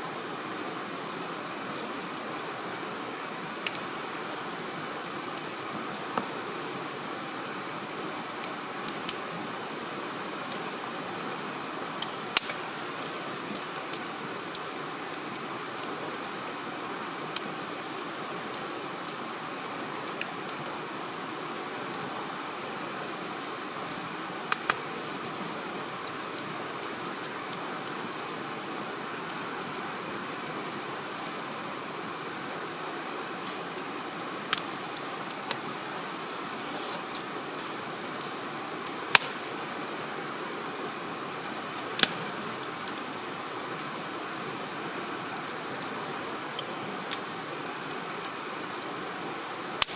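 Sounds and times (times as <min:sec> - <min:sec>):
wood fire crackling: 0:00.0 - 0:49.9
sharp pops of fire: 0:11.9 - 0:13.2, 0:23.9 - 0:24.8, 0:36.6 - 0:39.5, 0:42.0 - 0:43.0.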